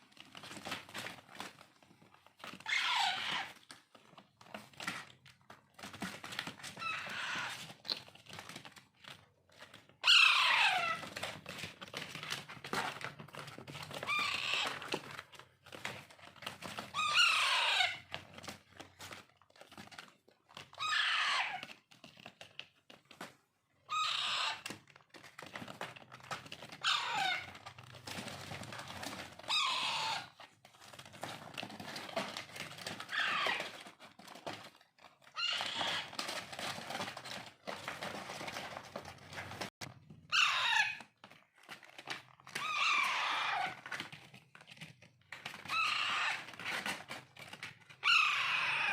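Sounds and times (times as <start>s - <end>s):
parakeet chicks begging calls: 10.0s - 11.0s, 17.0s - 18.0s, 26.8s - 27.5s, 29.5s - 30.3s, 40.3s - 41.0s.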